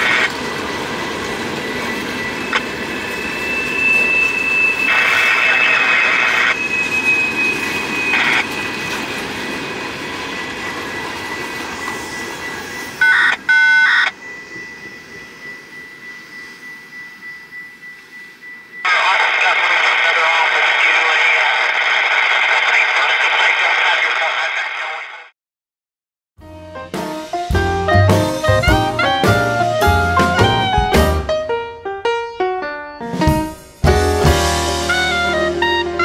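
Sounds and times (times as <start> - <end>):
train wheels rumbling on rail: 0.0 - 13.5
high whines: 0.0 - 23.0
short loud tones: 2.2 - 8.9.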